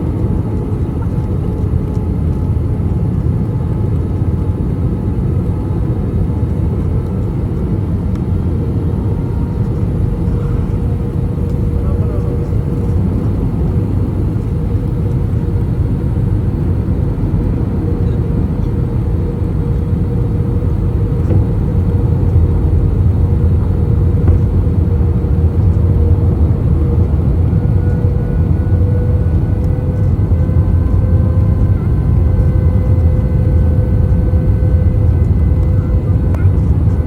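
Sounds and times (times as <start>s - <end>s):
airflow and jet engine rumble: 0.0s - 37.0s
steady cabin hum: 8.4s - 37.0s.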